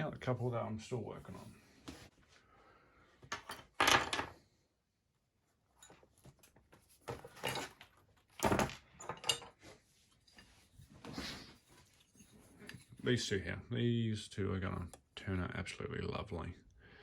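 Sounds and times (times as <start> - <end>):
handling scrapes and knocks: 5.8 - 13.2
drawer opening and shutting: 6.8 - 9.6.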